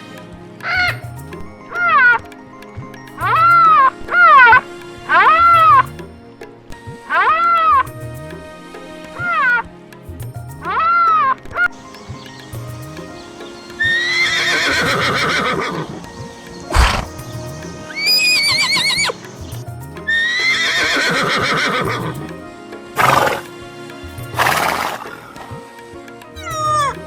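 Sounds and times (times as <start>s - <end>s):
background music: 0.0s - 27.0s
horse whinnying: 13.8s - 19.3s, 20.4s - 22.2s, 23.0s - 23.5s, 26.4s - 27.0s
horse breathing bursts: 14.2s - 19.5s, 23.0s - 23.5s, 24.3s - 25.5s.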